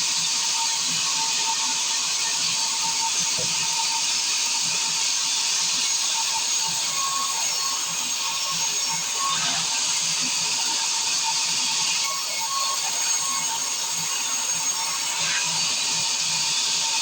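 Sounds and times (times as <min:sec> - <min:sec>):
circular saw cutting wood: 0:00.0 - 0:17.0.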